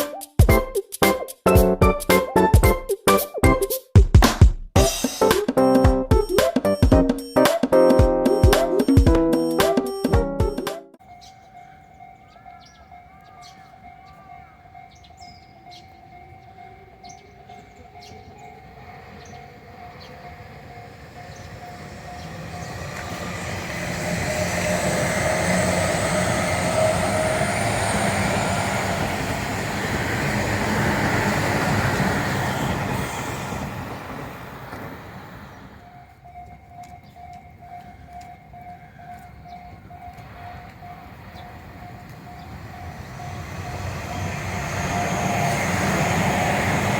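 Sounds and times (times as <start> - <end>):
electric train passing: 4.8 - 46.9
pulsing crossing tone: 6.1 - 11.0, 20.4 - 29.3.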